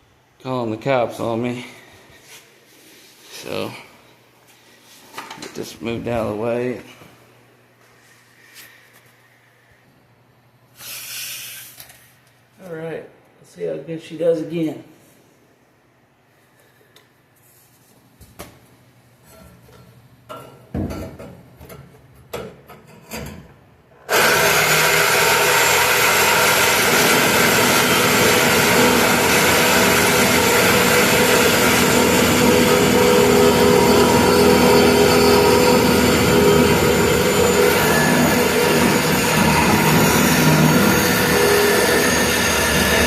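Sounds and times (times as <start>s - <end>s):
reciprocating saw cutting steel pipe: 24.1s - 43.0s.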